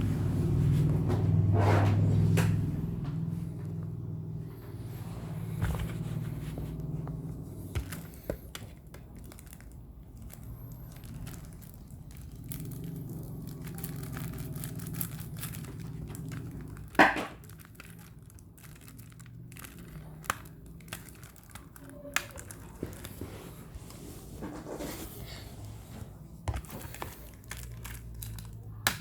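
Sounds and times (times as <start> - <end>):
packaging crinkling and tearing: 7.6 - 23.8, 26.6 - 29.0.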